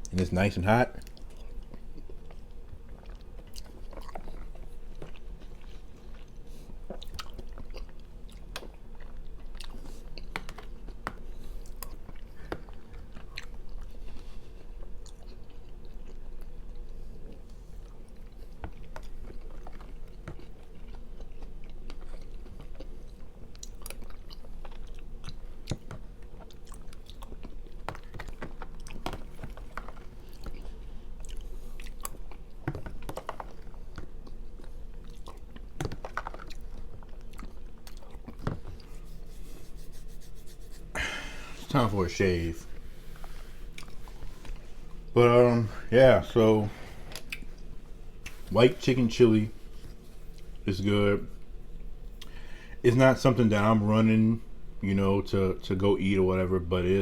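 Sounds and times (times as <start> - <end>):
steady low hum: 0.0 - 57.0
person chewing: 1.0 - 41.6, 42.8 - 45.1, 46.9 - 48.5, 52.1 - 52.4.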